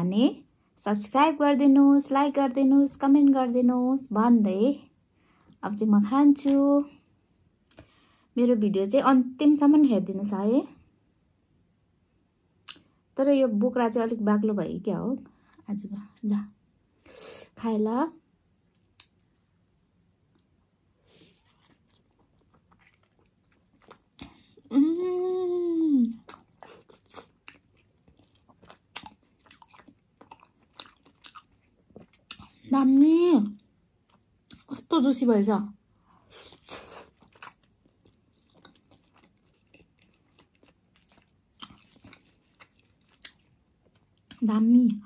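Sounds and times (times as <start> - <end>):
wet chewing clicks and smacks: 21.6 - 24.4, 26.2 - 32.7, 36.5 - 45.0
person humming mmm: 24.7 - 26.2.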